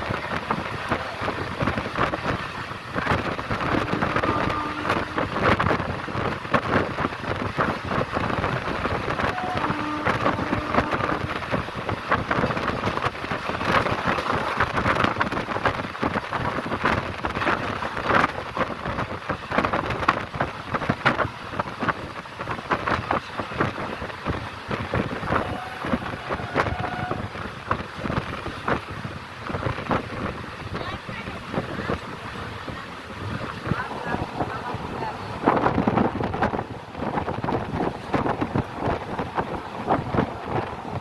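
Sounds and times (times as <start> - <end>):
train rumbling on track: 0.0 - 41.0.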